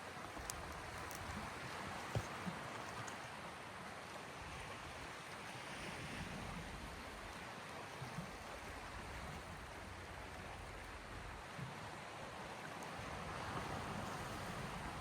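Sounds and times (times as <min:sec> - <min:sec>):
small waves washing on shore: 0:00.0 - 0:15.0.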